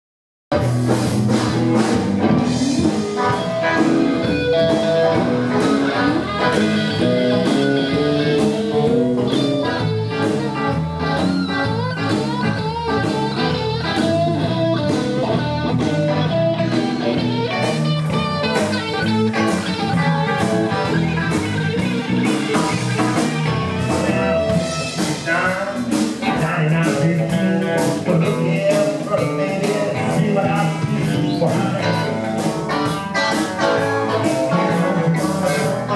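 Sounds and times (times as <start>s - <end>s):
drum beat: 0.5s - 35.9s
lead guitar: 0.5s - 35.9s
live blues band: 0.5s - 35.9s.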